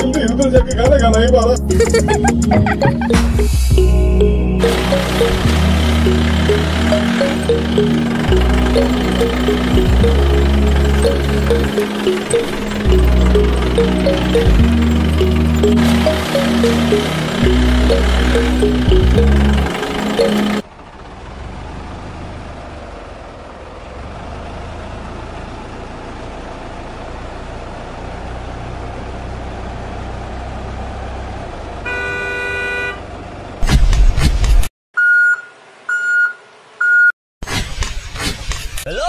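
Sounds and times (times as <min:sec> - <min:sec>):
car engine running: 0:01.7 - 0:30.5
car horn toot: 0:31.8 - 0:33.0.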